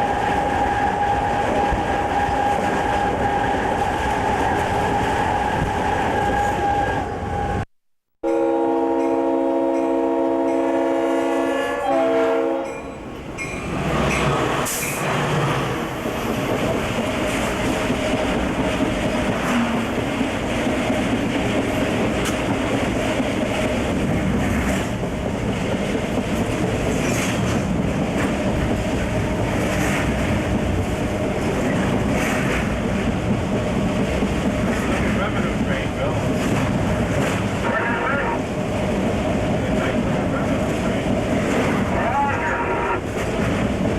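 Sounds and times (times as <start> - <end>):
train running and rail clatter: 0.0 - 7.6, 8.8 - 43.9
locomotive air horn blast: 8.2 - 12.8, 42.0 - 43.1.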